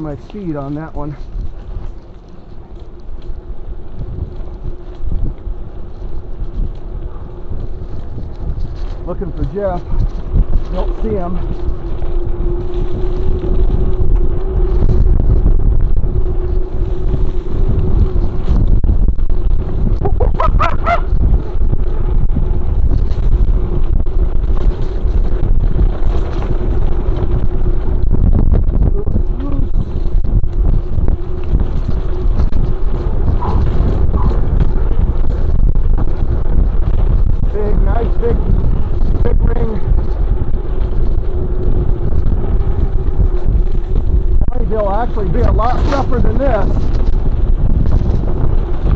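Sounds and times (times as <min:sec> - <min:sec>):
bike rolling over dirt trail: 0:00.0 - 0:48.9
wind buffeting microphone: 0:00.0 - 0:48.9.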